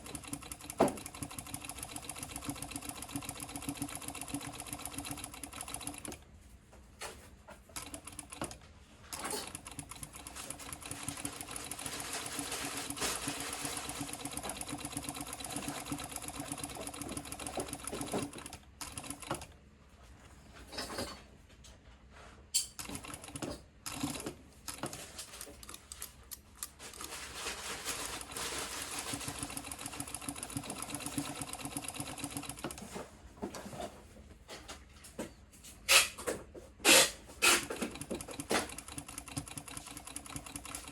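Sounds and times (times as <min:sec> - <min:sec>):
sewing machine stitching: 0:00.0 - 0:06.2, 0:07.6 - 0:19.6, 0:22.7 - 0:26.0, 0:26.8 - 0:33.9, 0:36.8 - 0:40.9.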